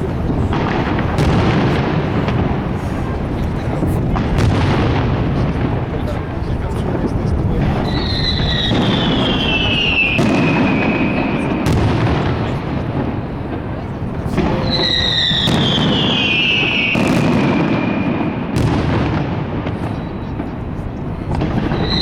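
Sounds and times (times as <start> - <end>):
firework bangs: 0.0 - 22.0
fireworks crackling rumble: 0.0 - 22.0
falling firework whistles: 7.8 - 11.8, 14.3 - 20.6, 21.3 - 22.0.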